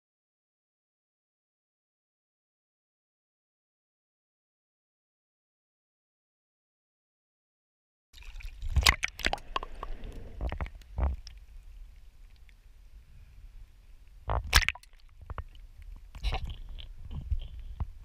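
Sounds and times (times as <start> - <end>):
uneven low rumble: 9.2 - 14.4.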